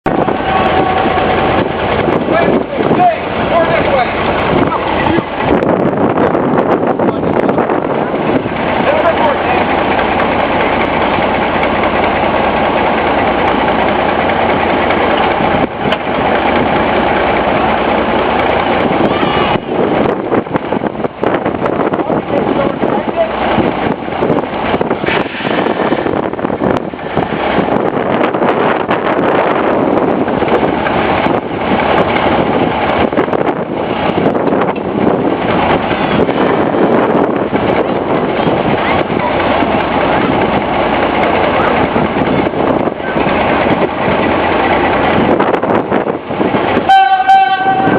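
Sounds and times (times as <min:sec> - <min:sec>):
locomotive engine running: 0:00.0 - 0:47.9
wind buffeting microphone: 0:00.0 - 0:47.9.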